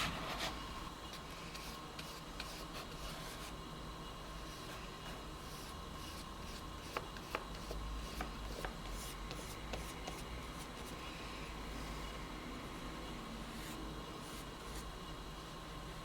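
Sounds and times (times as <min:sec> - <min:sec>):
drawing tool scratching on paper: 0:00.0 - 0:03.6, 0:04.4 - 0:11.0.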